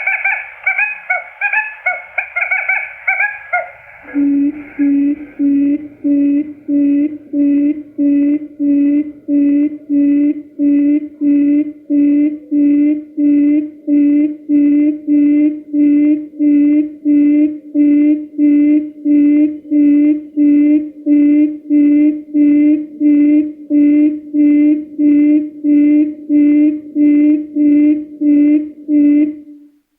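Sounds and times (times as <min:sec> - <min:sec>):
quail lure call: 0:00.0 - 0:05.4.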